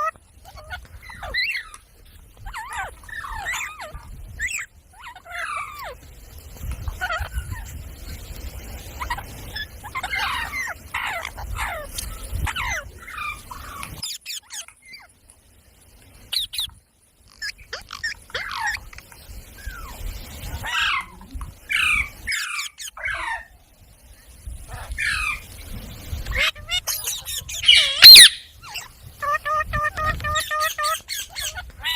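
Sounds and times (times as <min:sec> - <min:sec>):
parrot calling: 0:00.0 - 0:06.0, 0:06.9 - 0:07.8, 0:09.0 - 0:15.1, 0:17.3 - 0:19.0, 0:19.6 - 0:23.5, 0:24.7 - 0:25.5, 0:26.2 - 0:31.9.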